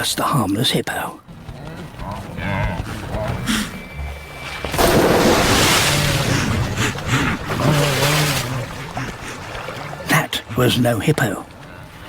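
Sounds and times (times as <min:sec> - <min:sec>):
churning water: 0:00.0 - 0:12.0
big water splash: 0:04.2 - 0:11.5.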